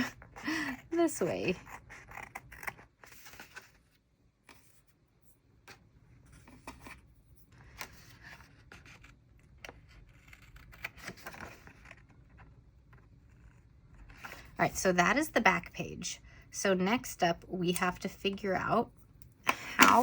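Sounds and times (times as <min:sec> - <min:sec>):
paper rustling: 0:05.7 - 0:13.1.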